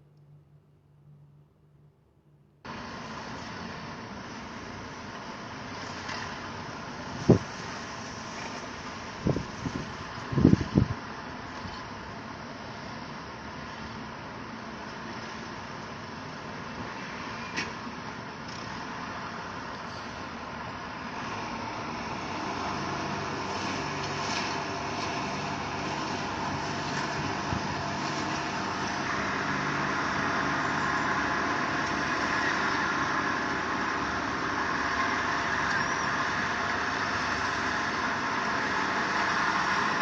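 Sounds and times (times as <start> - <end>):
vehicle engine running: 18.3 - 40.0.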